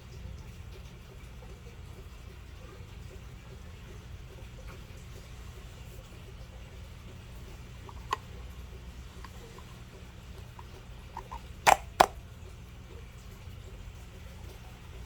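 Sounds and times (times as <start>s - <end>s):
low steady hum: 0.0s - 15.0s
small handling clicks: 7.8s - 8.4s, 10.4s - 12.2s.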